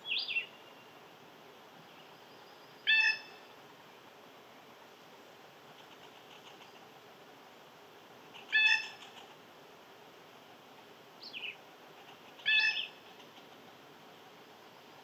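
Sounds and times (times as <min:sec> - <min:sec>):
bird calling loudly: 0:02.8 - 0:03.4, 0:08.4 - 0:09.2, 0:11.2 - 0:13.0.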